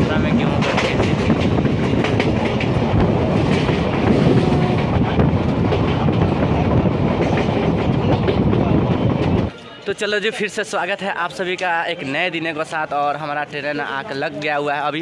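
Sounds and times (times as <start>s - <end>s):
train rumbling: 0.0s - 9.5s
wheels clattering over rail joints: 0.1s - 9.5s.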